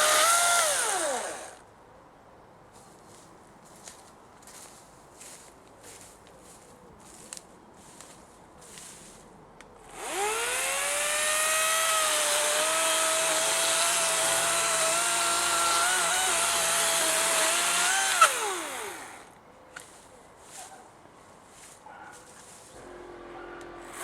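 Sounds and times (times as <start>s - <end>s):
electric chainsaw whining: 0.0s - 1.6s, 9.8s - 19.3s.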